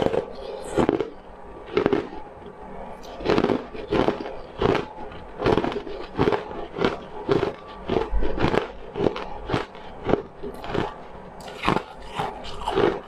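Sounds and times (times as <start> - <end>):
chewing crunchy food: 0.0 - 13.0.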